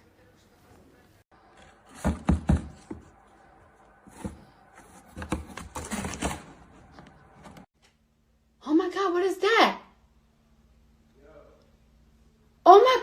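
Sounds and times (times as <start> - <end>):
rustling handling noise: 1.4 - 7.7.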